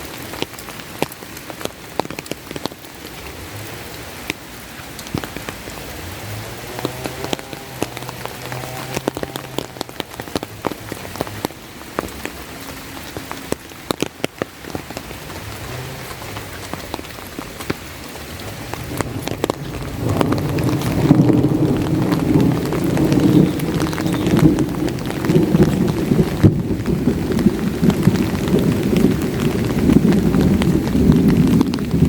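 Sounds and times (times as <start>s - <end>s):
raindrops tapping on umbrella: 0.0s - 32.0s
steady rain: 0.0s - 32.0s.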